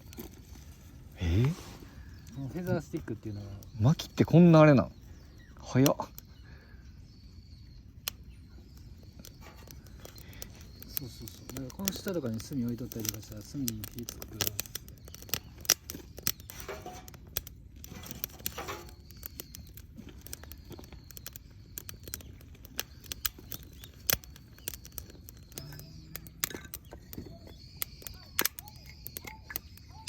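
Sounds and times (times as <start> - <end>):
campfire crackling and popping: 0.0 - 30.0
faint high chirps: 17.9 - 30.0.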